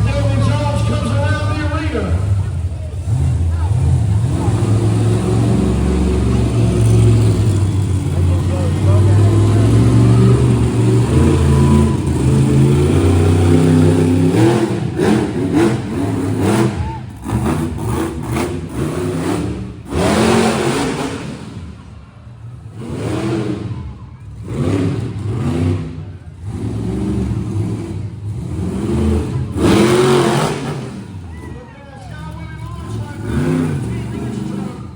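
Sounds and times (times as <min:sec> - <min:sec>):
monster truck engine revving: 0:00.0 - 0:34.9.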